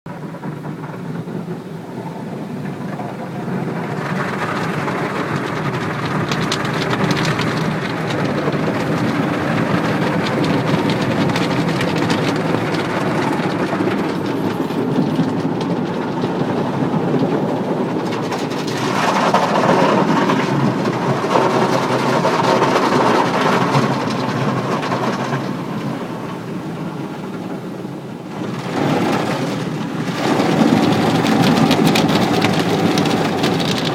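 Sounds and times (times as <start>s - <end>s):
car wash machinery drumming: 0.1s - 33.9s
water spray on car body: 28.3s - 33.9s.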